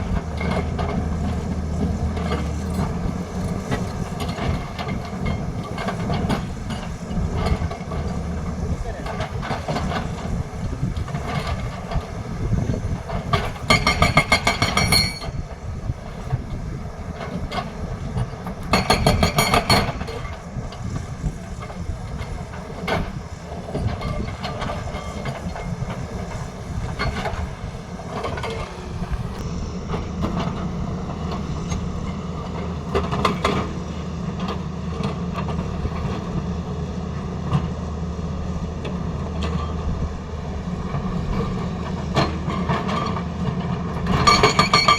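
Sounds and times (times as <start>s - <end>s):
excavator engine running: 0.0s - 44.9s
hydraulic breaker hammering: 13.4s - 15.4s
scattered knocks: 18.7s - 20.0s.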